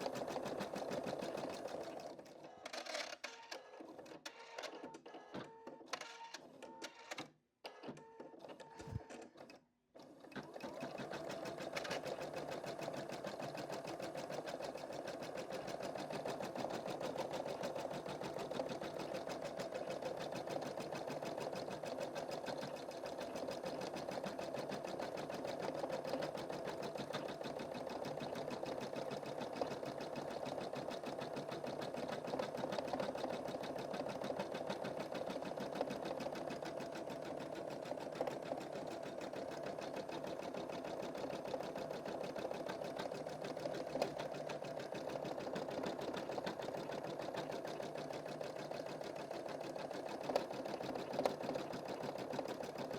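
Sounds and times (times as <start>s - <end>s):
embroidery machine stitching: 0.0s - 2.2s, 10.0s - 52.9s.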